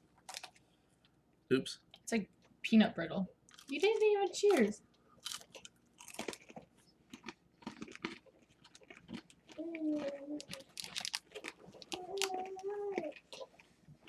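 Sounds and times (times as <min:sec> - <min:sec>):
crunchy chewing: 0:05.2 - 0:14.0.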